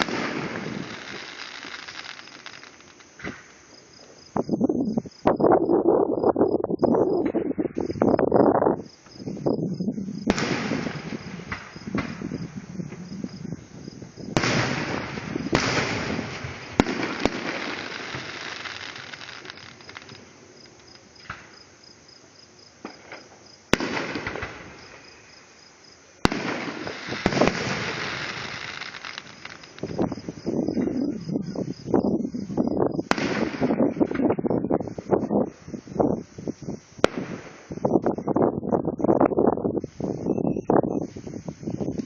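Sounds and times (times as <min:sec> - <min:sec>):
fireworks banging and crackling: 0:00.0 - 0:05.4, 0:06.9 - 0:25.5, 0:26.2 - 0:38.5.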